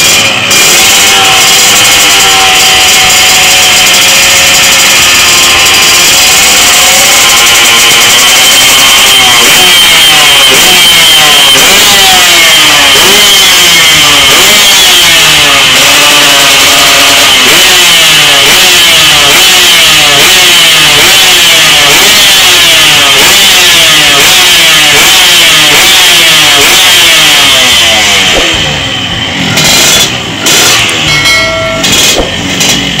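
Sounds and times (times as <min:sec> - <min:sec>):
two-stroke engine revving: 0:27.6 - 0:33.0.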